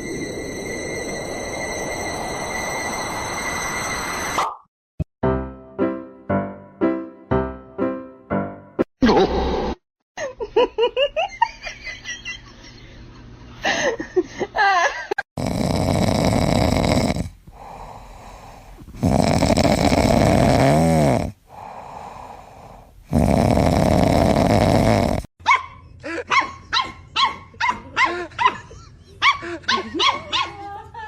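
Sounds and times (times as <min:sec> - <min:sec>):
dog barking and yipping: 0:25.4 - 0:30.6.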